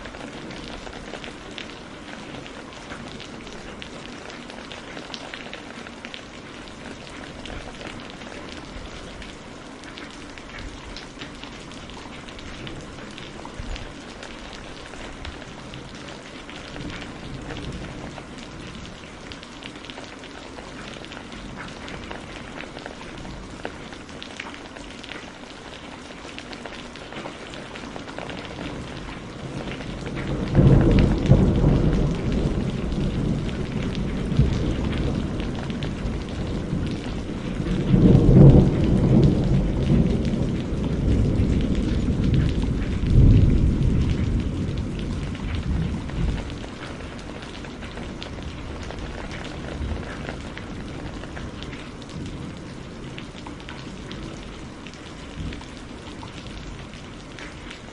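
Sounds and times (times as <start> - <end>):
steady rain falling: 0.0 - 57.9
thunder rumble: 28.4 - 53.0.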